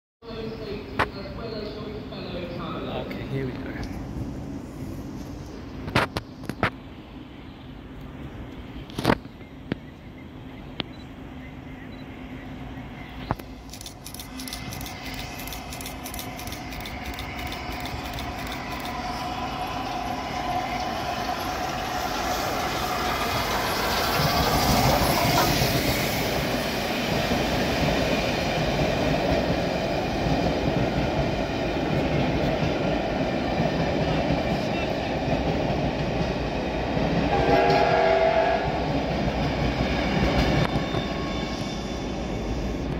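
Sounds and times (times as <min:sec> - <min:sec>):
diesel locomotive passing: 0:00.2 - 0:42.9
steam locomotive passing: 0:11.2 - 0:42.9
short pitched horn note: 0:37.3 - 0:38.7.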